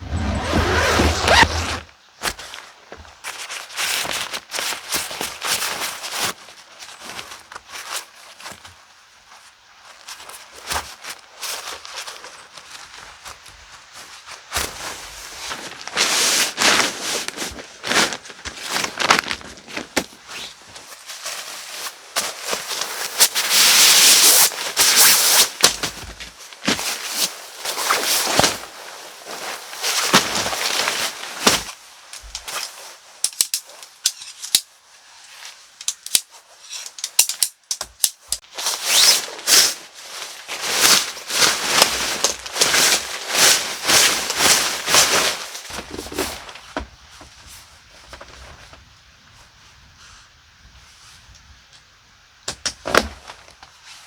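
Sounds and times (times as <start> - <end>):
rustling: 0.0 - 2.6, 11.5 - 37.2, 38.1 - 51.3.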